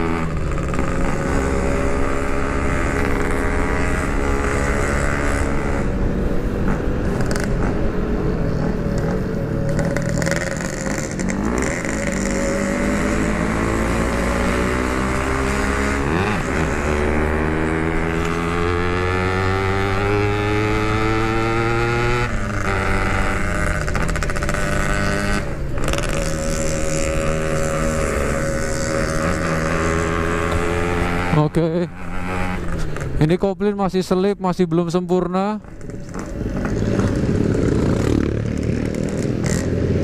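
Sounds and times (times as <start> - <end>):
motorcycle engine accelerating: 0.0 - 33.4, 35.6 - 40.0
rider talking: 31.2 - 32.2, 33.1 - 35.7.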